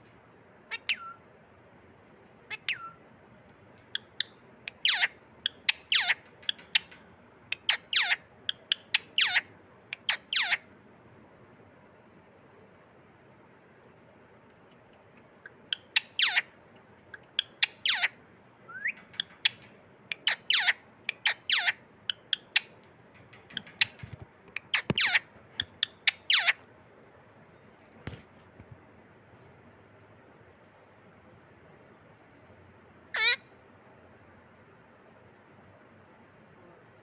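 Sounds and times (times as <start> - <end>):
parrot squawking: 0.7 - 1.2, 2.5 - 3.0, 3.8 - 10.6, 15.4 - 22.7, 23.5 - 26.6, 33.2 - 33.5.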